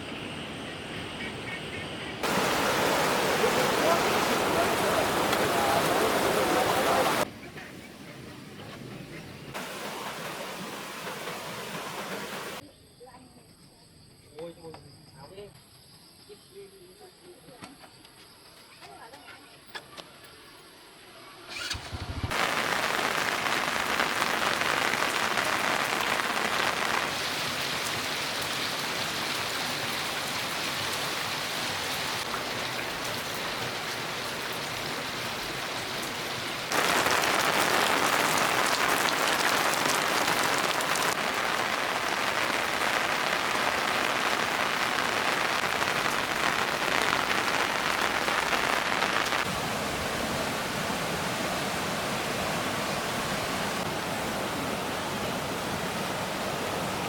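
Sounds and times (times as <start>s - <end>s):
heavy rain pouring: 2.2s - 8.6s, 9.5s - 12.6s, 21.6s - 57.0s.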